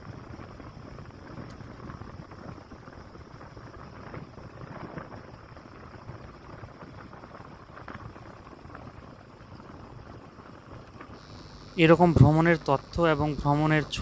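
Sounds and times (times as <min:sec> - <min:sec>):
motorcycle engine rumble: 0:11.0 - 0:14.0.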